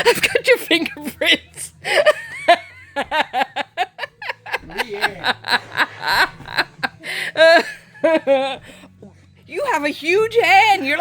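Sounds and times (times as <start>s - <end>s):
people talking: 0.0s - 1.4s, 4.2s - 6.6s, 9.5s - 11.0s
people laughing: 0.0s - 8.8s.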